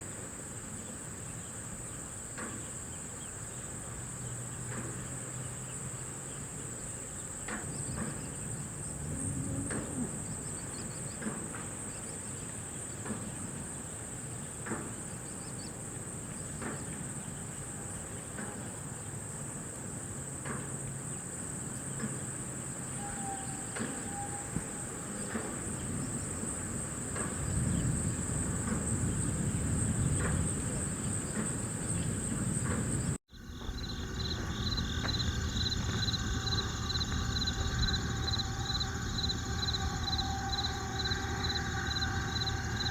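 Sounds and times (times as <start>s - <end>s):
crickets chirping: 0.0s - 42.9s
low rumble: 27.3s - 42.9s.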